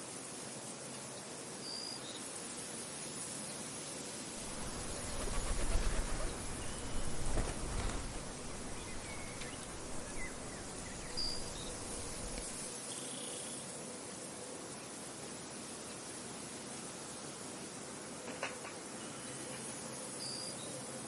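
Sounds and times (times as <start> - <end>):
high drone of insects: 0.0 - 21.0
wind gusting against microphone: 4.4 - 12.7.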